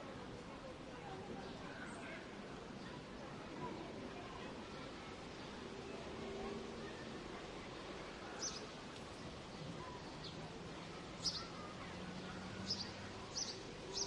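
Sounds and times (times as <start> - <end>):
birds chirping: 8.4 - 8.7, 11.2 - 14.0.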